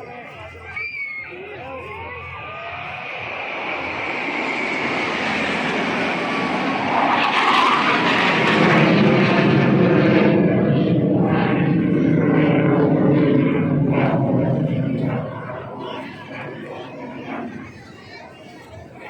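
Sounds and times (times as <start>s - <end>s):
aircraft engine roar: 0.0s - 19.0s
deep rumble: 2.0s - 17.0s.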